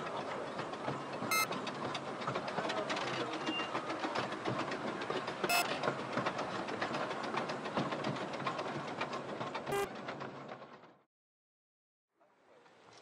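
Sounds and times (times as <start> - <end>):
miniature train rattling on track: 0.0 - 11.0
shrill wheel squeaks: 5.5 - 5.8.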